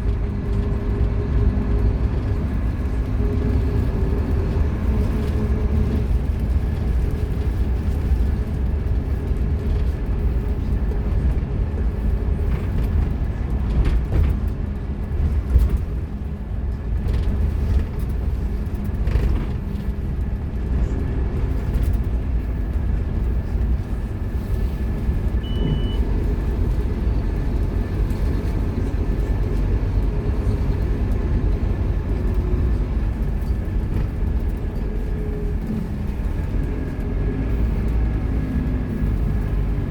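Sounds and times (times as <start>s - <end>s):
bus diesel engine running: 0.0s - 39.9s
high beep: 25.4s - 26.0s.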